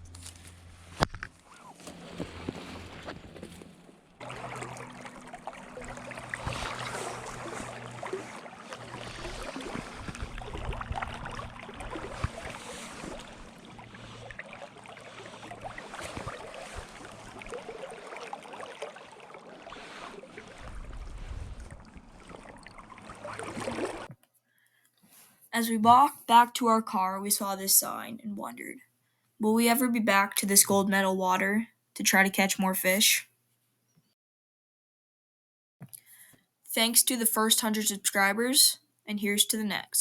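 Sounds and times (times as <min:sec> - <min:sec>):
wind rumbling on microphone: 0:00.8 - 0:18.0, 0:19.8 - 0:24.1
water running over rocks: 0:01.8 - 0:24.1.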